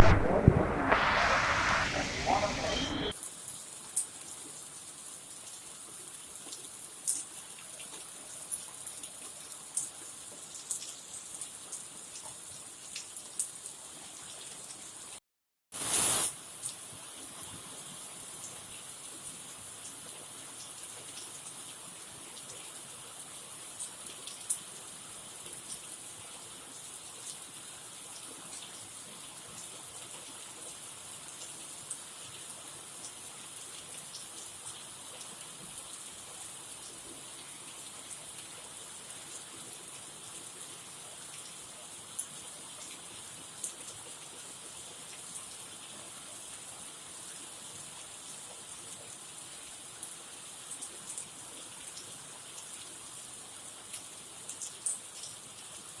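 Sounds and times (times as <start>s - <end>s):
heavy rain falling: 0.0s - 3.1s
sharp raindrop hits: 0.0s - 3.1s.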